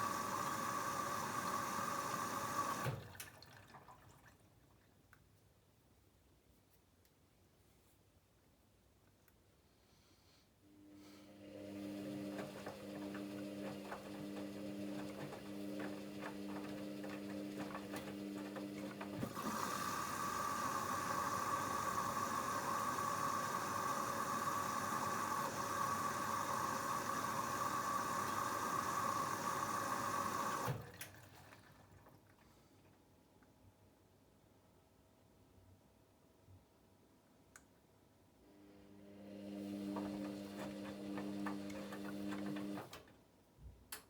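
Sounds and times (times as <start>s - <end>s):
water rushing into machine: 0.0s - 4.3s, 19.1s - 32.4s
washing machine humming: 0.0s - 4.6s, 11.3s - 32.8s, 39.0s - 43.2s
inlet valve shutting off: 19.1s - 31.0s.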